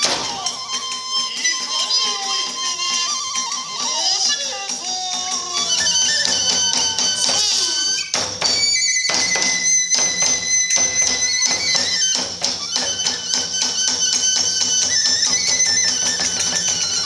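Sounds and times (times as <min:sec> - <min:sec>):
bamboo flute long notes: 0:00.0 - 0:17.0
drum strikes: 0:00.0 - 0:17.0
hand cymbal strikes: 0:00.0 - 0:17.0.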